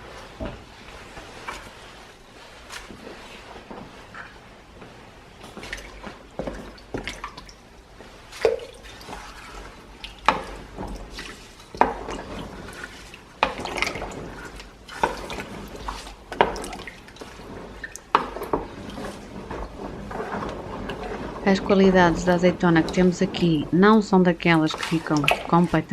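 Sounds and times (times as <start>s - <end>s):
liquid dripping: 5.5s - 19.6s, 24.4s - 25.9s.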